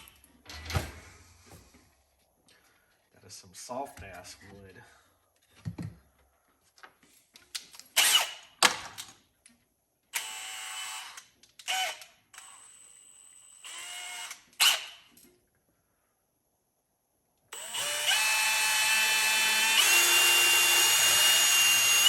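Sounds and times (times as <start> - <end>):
power drill whining into wood: 8.0 - 8.4, 10.2 - 15.0, 17.5 - 22.0.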